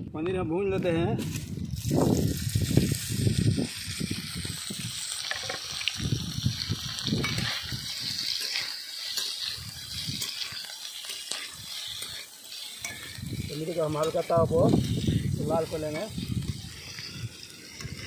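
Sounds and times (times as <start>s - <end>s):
cheese cubes sizzling in hot oil: 1.3s - 18.0s
metal spatula scraping a pan: 7.1s - 18.0s.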